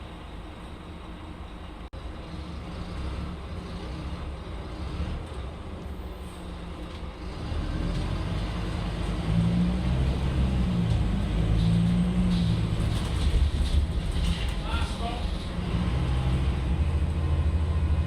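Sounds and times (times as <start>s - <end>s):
bus diesel engine running: 0.0s - 18.0s.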